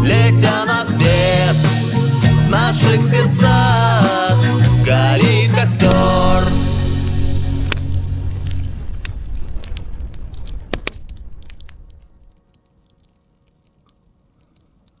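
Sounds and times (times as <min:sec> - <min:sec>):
campfire crackling: 0:03.5 - 0:12.4.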